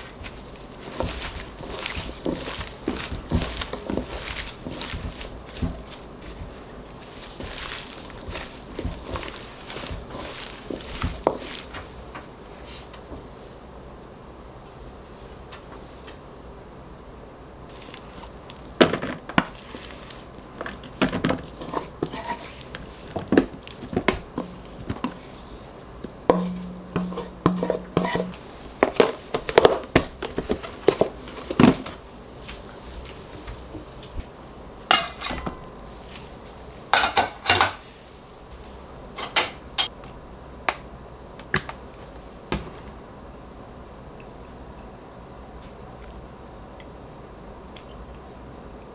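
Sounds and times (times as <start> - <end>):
scraping or rustling: 0.0 - 12.0, 17.7 - 29.3, 34.9 - 38.0
tableware clinking: 34.9 - 35.8, 37.0 - 37.8.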